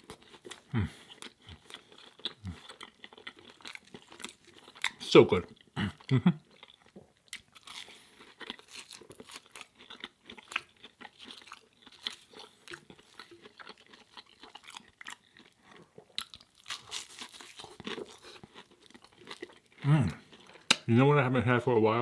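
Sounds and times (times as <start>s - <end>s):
chewing food crunches: 0.0s - 20.9s
wet mouth clicks: 20.6s - 20.9s.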